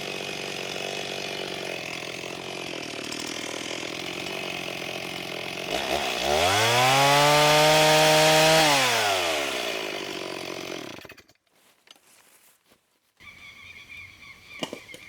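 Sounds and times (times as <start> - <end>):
chainsaw idling and revving: 0.0 - 11.4.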